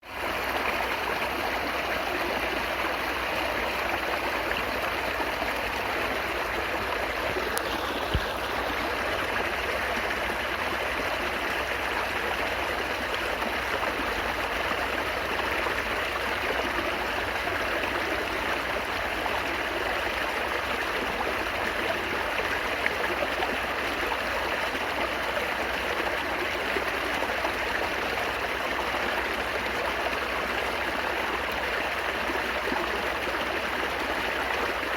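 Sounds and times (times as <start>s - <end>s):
stream babbling: 0.0s - 34.9s
faint click: 7.4s - 8.4s.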